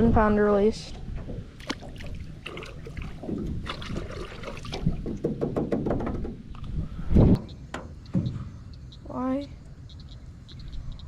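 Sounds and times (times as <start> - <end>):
water splashing: 1.0 - 5.2
irregular knocking: 5.0 - 6.5.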